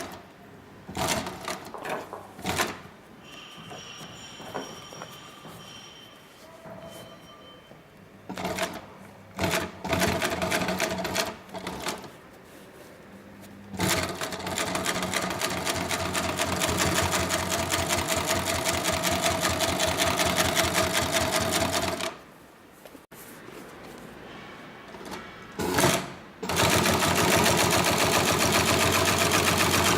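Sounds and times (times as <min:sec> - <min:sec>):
sewing machine stitching: 0:00.9 - 0:02.9, 0:08.3 - 0:12.1, 0:13.7 - 0:22.2, 0:25.0 - 0:29.9.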